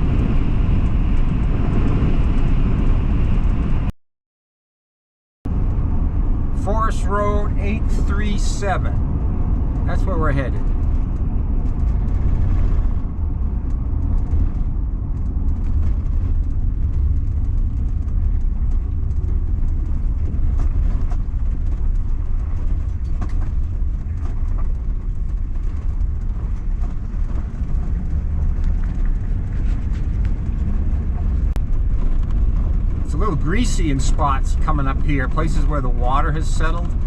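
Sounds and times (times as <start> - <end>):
van engine and tyres rumbling: 0.0 - 3.9, 5.5 - 37.0.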